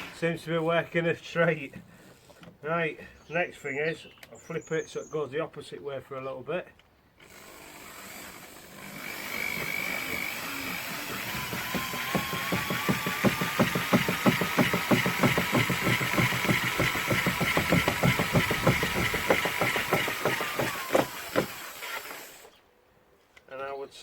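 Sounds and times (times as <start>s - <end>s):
drill motor whine: 7.2s - 22.5s
rapid even knocking: 9.4s - 21.7s.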